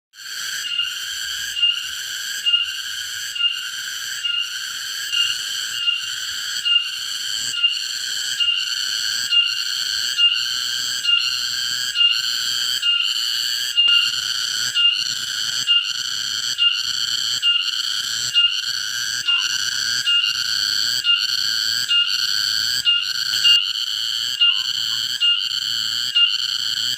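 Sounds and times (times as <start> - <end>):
insect calling high whistle-like tone: 0.2 - 26.9.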